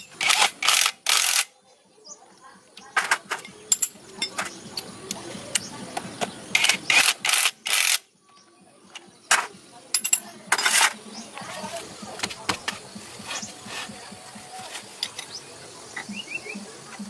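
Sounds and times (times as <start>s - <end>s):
mechanical clicking and knocking: 6.5s - 8.0s.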